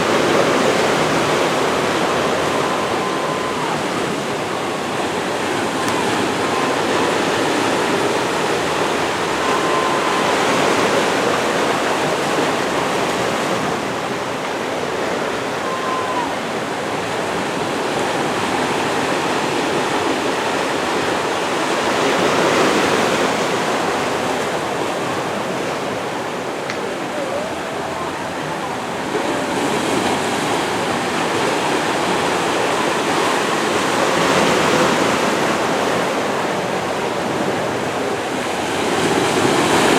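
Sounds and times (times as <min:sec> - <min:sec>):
water rushing: 0:00.0 - 0:39.9
wind: 0:00.0 - 0:39.9
faint whistle-like tones: 0:00.3 - 0:13.8.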